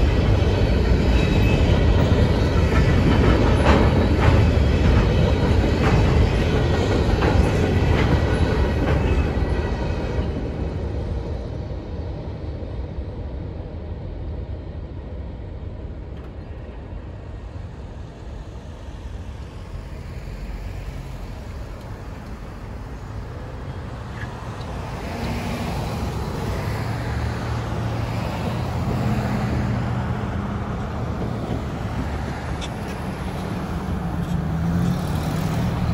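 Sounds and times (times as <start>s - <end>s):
train wheels clicking over joints: 0.1s - 10.4s
road vehicle engine hum: 15.8s - 35.9s.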